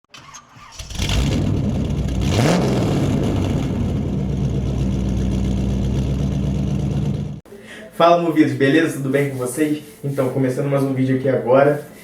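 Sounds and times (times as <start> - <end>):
car engine revving: 0.8 - 7.4.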